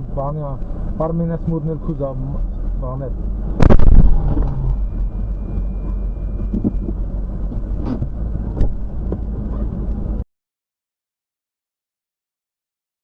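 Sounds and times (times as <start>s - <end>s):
car rumbling on the move: 0.0s - 10.2s.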